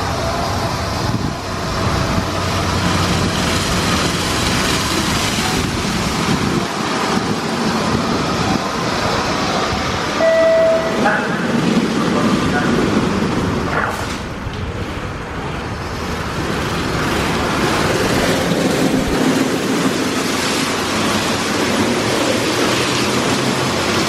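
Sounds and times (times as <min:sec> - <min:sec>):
car wash equipment rushing: 0:00.0 - 0:24.0
short beep: 0:10.2 - 0:11.0.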